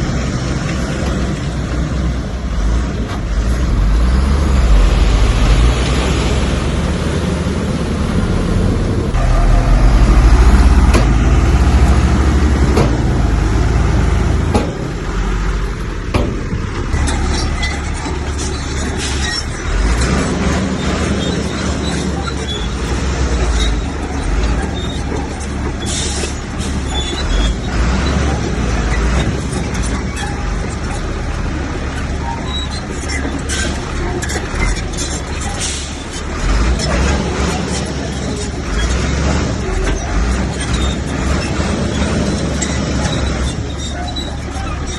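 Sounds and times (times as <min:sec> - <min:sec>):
diesel machinery engine running: 0:00.0 - 0:44.9
clanks and knocks: 0:10.8 - 0:11.4, 0:12.6 - 0:13.2, 0:14.4 - 0:15.2, 0:16.0 - 0:44.9.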